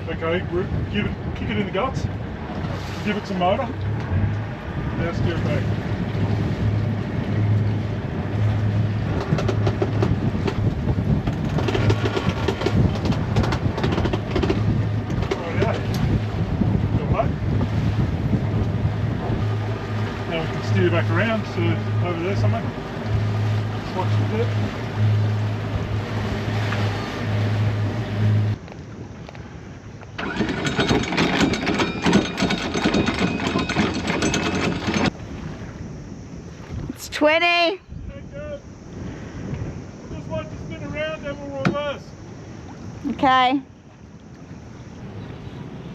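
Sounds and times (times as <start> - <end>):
water wash: 0.0 - 29.0, 30.1 - 35.8
diesel engine droning: 2.0 - 28.7, 30.2 - 35.1
anchor chain rattling: 8.8 - 16.2, 30.2 - 35.2.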